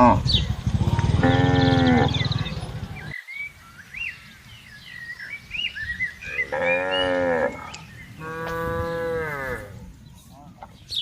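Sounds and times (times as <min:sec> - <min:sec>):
small birds chirping: 0:00.0 - 0:11.0
cow mooing: 0:01.0 - 0:02.3, 0:06.4 - 0:09.8.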